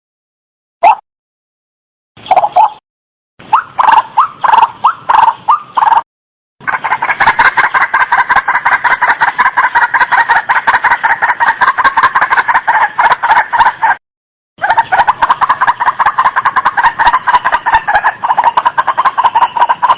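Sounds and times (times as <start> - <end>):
waterhen calling: 2.2 - 2.8, 3.5 - 6.0, 6.6 - 14.0, 14.6 - 19.9.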